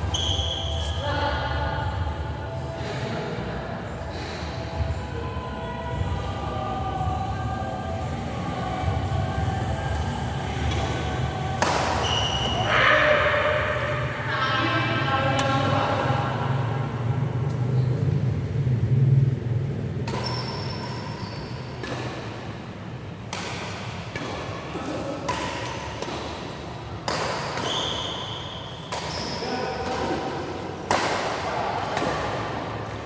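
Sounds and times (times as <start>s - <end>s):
shoe squeaks: 0.0s - 1.1s, 12.0s - 13.1s, 20.1s - 21.9s, 27.6s - 29.7s.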